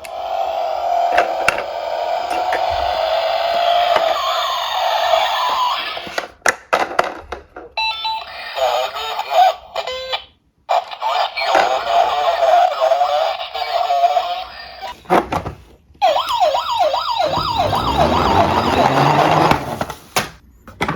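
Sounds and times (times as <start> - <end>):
toy electronic siren: 0.0 - 6.2, 16.0 - 19.8.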